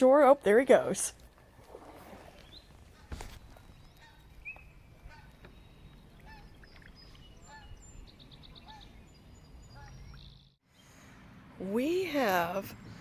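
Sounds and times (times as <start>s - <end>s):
distant birds calling: 1.2s - 11.6s
bird chirps and trill: 3.6s - 10.6s.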